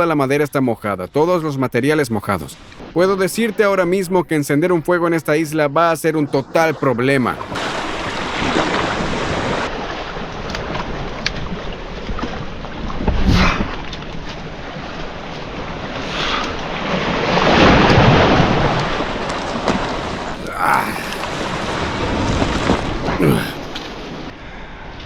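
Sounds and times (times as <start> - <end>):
waves washing on beach: 6.4 - 25.0
wind on microphone: 7.4 - 19.4.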